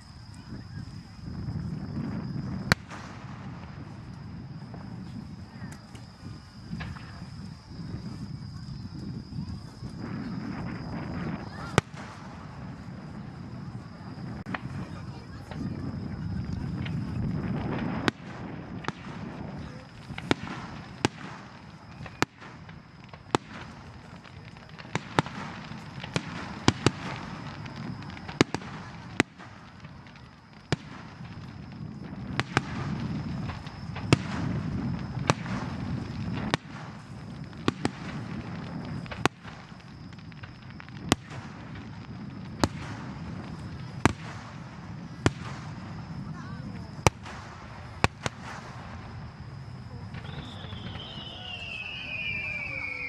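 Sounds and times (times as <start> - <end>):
fireworks crackling: 0.0 - 53.0
firework shells bursting: 50.1 - 53.0.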